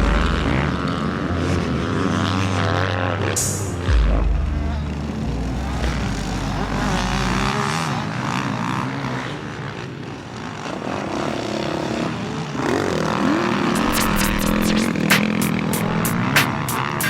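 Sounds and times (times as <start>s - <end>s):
motocross bike engines revving: 0.0s - 17.0s
sharp ticks: 13.8s - 17.0s.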